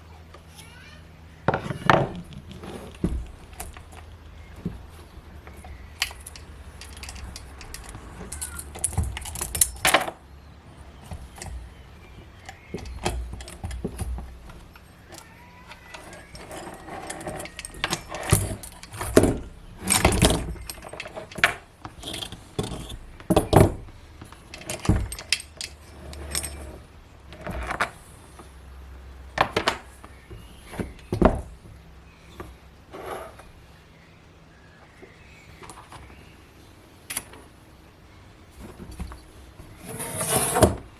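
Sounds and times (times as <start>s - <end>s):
metal tools clinking and clattering: 1.9s - 10.2s, 10.8s - 28.0s.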